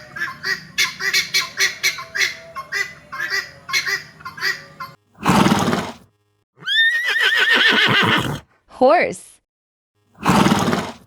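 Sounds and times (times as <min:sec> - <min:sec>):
guinea fowl calling harshly: 0:00.0 - 0:05.0
horse whinnying: 0:06.6 - 0:08.4, 0:10.2 - 0:11.0.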